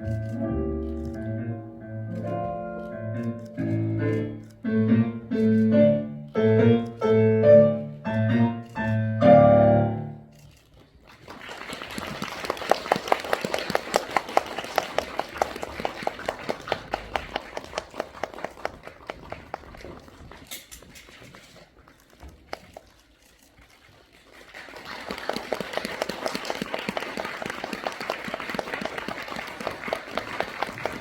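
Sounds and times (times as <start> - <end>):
piano chords: 0.0 - 10.3
audience applauding: 11.0 - 20.5, 23.7 - 31.0.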